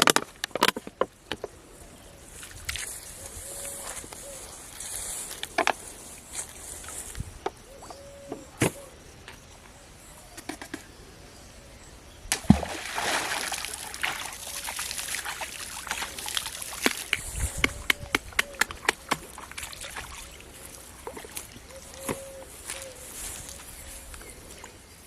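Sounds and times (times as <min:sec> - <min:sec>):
loud water splash: 0:12.3 - 0:17.2
short sharp splashes and drips: 0:12.3 - 0:17.3, 0:18.8 - 0:20.4
water sloshing: 0:12.3 - 0:22.8.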